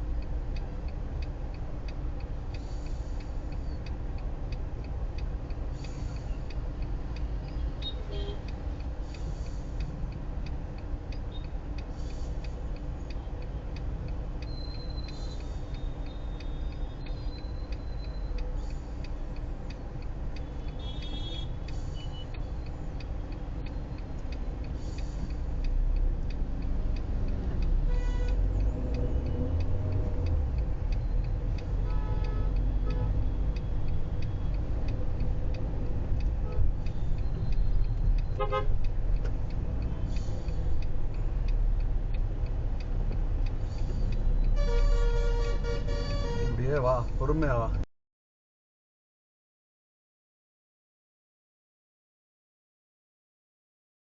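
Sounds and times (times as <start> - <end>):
car idling in traffic: 0.0 - 47.8.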